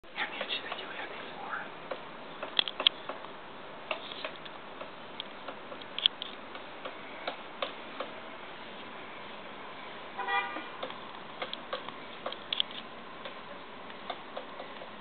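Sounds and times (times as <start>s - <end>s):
woodpecker tapping on wood: 0.3s - 1.0s, 1.8s - 8.2s, 10.8s - 12.6s, 13.2s - 15.0s.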